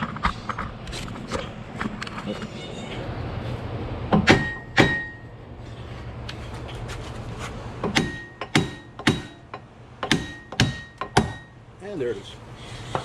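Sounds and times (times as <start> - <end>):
hammer striking metal: 4.1 - 5.3, 7.8 - 11.6.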